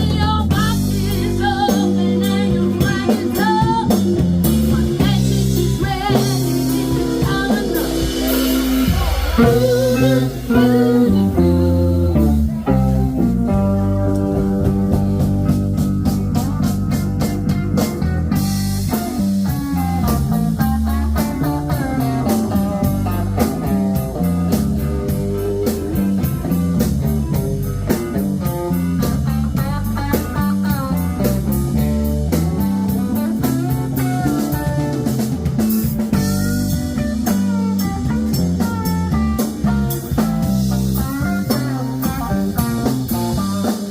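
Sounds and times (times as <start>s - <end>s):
bass guitar: 0.0s - 43.9s
drum kit beat: 0.0s - 43.9s
electric guitar lead: 0.0s - 43.9s.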